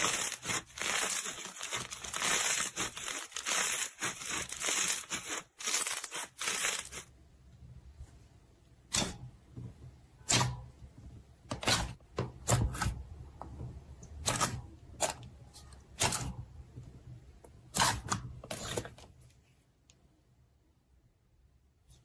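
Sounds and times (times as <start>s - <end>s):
slime popping and squelching: 0.0s - 7.1s.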